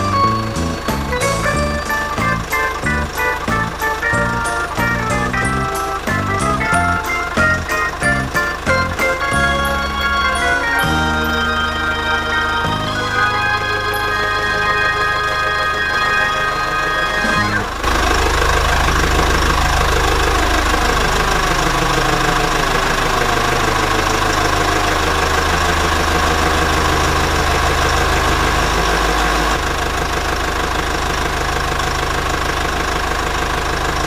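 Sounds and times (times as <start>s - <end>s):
music: 0.0s - 17.8s
heavy equipment engine running: 0.0s - 34.0s.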